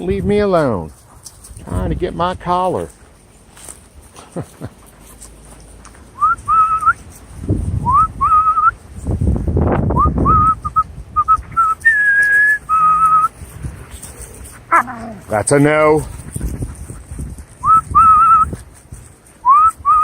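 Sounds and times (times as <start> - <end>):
wind buffeting microphone: 0.0 - 2.6, 7.2 - 20.0
man whistling: 6.2 - 7.0, 7.8 - 8.8, 10.0 - 13.3, 17.6 - 18.6, 19.4 - 20.0.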